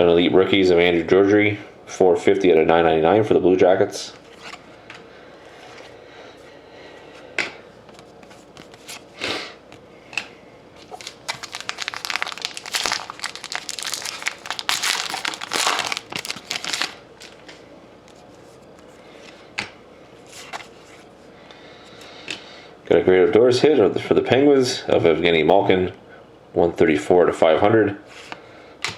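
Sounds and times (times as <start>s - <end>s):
foil wrapper tearing and crinkling: 10.8s - 17.4s.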